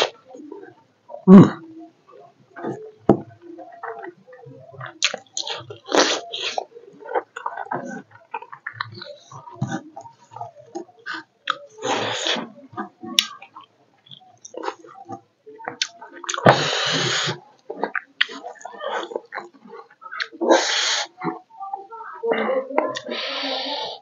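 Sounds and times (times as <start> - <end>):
man chewing food: 2.6 - 21.5.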